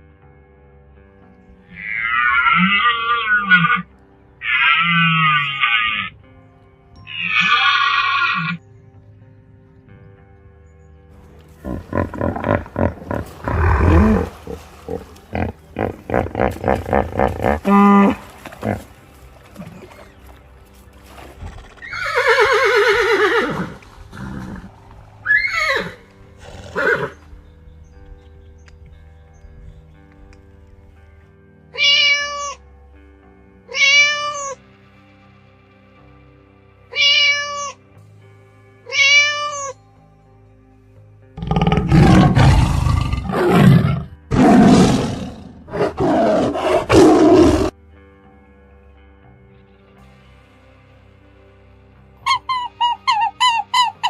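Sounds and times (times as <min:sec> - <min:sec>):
soft background music: 0:00.0 - 0:54.0
horse whinnying: 0:01.7 - 0:06.1, 0:07.0 - 0:08.6, 0:11.6 - 0:18.9, 0:21.4 - 0:27.2, 0:38.9 - 0:39.8, 0:41.4 - 0:47.8
large animal roaring: 0:11.6 - 0:18.9, 0:41.4 - 0:47.8
cat meowing: 0:31.8 - 0:32.6, 0:33.7 - 0:34.6, 0:36.9 - 0:37.8, 0:38.9 - 0:39.8.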